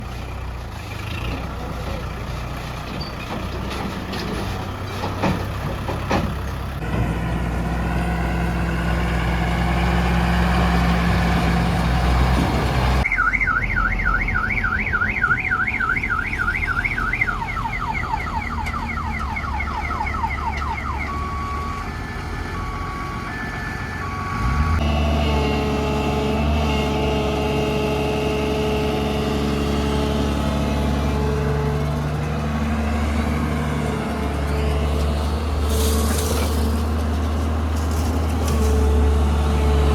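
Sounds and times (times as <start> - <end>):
heavy diesel engines running: 0.0 - 39.9
electronic vehicle alarm: 13.0 - 24.7.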